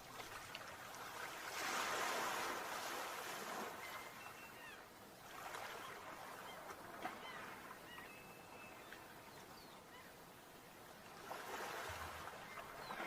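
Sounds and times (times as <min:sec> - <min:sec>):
sea waves breaking: 0:00.0 - 0:08.0, 0:10.9 - 0:13.0
thin bird calls: 0:03.7 - 0:04.9, 0:05.6 - 0:10.2, 0:12.2 - 0:13.0.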